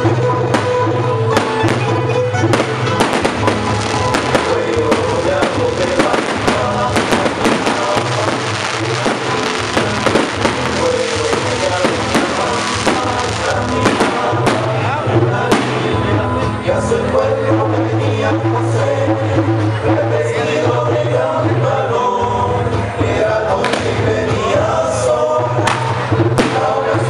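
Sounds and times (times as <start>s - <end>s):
loud music with bass line: 0.0s - 27.0s
fireworks bangs and crackles: 0.4s - 16.1s, 25.6s - 26.8s.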